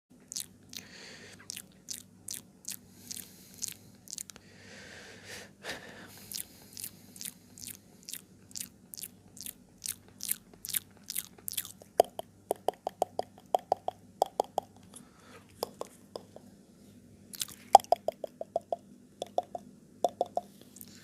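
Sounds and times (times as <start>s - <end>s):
wet lip and tongue clicks: 0.3s - 4.4s, 6.2s - 16.5s, 17.3s - 21.0s
breathy hiss: 0.8s - 1.5s, 2.8s - 8.2s.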